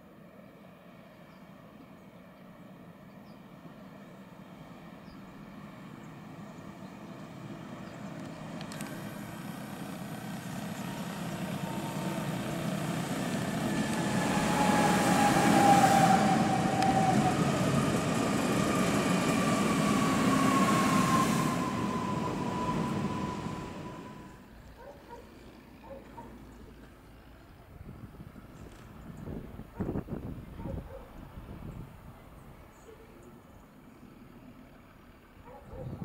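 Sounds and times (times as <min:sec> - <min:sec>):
wheel-on-rail rumble: 0:00.3 - 0:36.0
high whine sliding down in pitch: 0:10.7 - 0:24.4.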